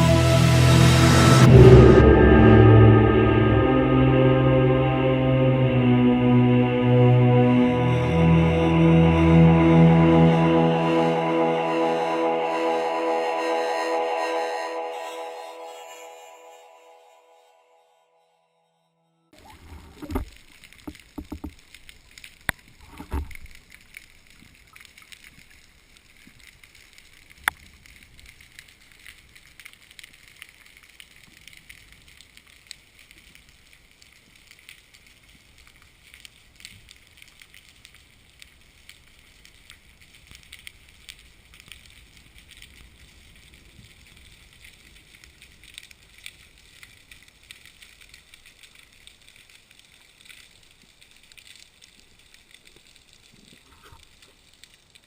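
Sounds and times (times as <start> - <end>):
faint outdoor hiss with crackles: 19.4 - 55.0.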